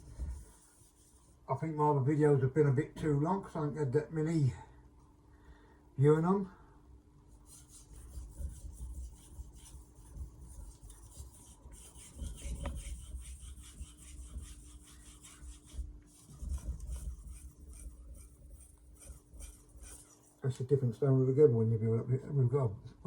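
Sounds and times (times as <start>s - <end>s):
knife blade rasping on whetstone: 10.6s - 20.3s.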